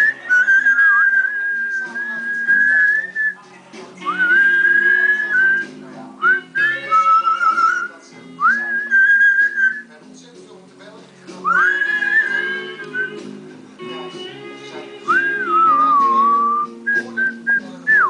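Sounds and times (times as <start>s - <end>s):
parrot whistling a tune: 0.0s - 3.4s, 4.0s - 9.9s, 11.5s - 13.2s, 15.1s - 18.0s.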